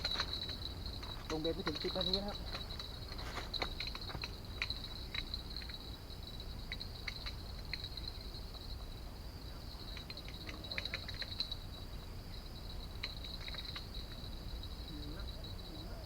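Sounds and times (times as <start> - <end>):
light clicks: 0.0 - 5.8, 9.8 - 11.6
insects trilling: 0.0 - 16.0.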